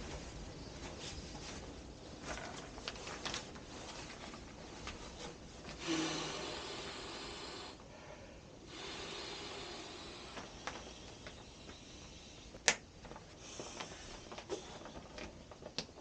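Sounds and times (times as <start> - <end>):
camping gear rustling: 0.0 - 6.0, 10.2 - 16.0.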